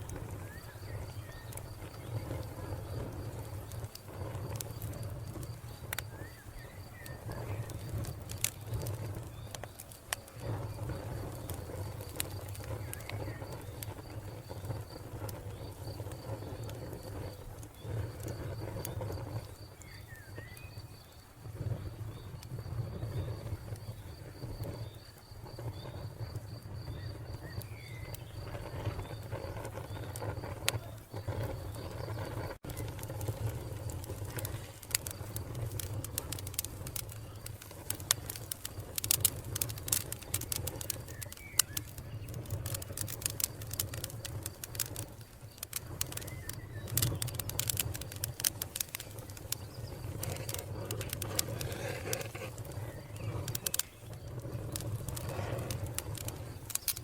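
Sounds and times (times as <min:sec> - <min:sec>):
wood fire crackling: 0:00.0 - 0:57.0
faint bird chirps: 0:00.2 - 0:03.0, 0:05.6 - 0:08.0, 0:18.8 - 0:33.0, 0:40.3 - 0:43.4, 0:45.5 - 0:48.3.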